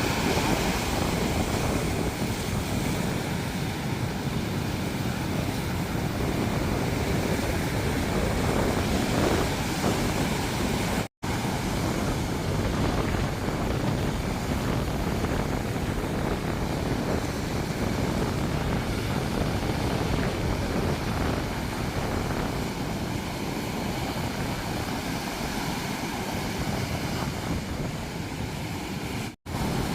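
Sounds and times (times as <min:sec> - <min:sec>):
ocean surf washing: 0:00.0 - 0:29.9
wind buffeting microphone: 0:00.0 - 0:29.9.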